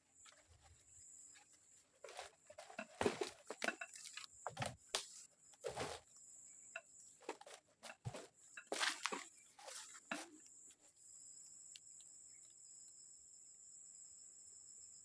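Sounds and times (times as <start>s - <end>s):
leaf litter and twigs crunching: 1.4s - 6.2s, 7.2s - 10.6s.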